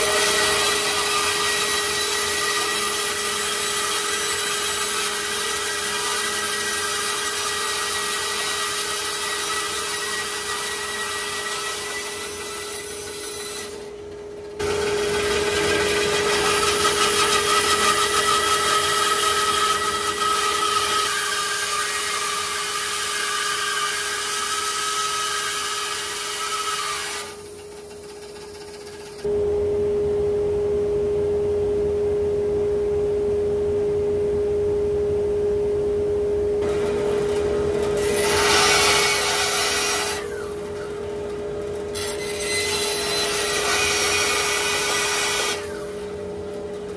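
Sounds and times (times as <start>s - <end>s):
turning tool cutting wood: 0.0s - 14.0s, 14.6s - 29.3s, 36.6s - 41.0s, 41.9s - 46.1s
wood lathe humming: 0.0s - 14.0s, 14.6s - 29.3s, 36.6s - 46.4s.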